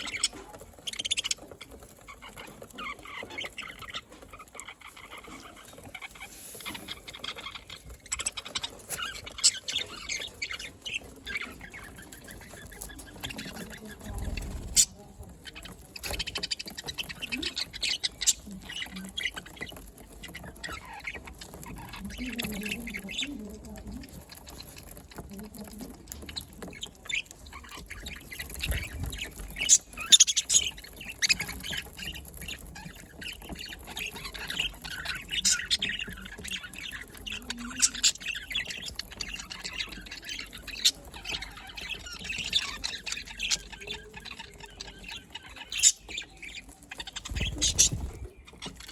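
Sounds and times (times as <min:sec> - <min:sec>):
budgerigars chattering: 0:00.0 - 0:48.9
sharp bird calls: 0:26.1 - 0:48.9.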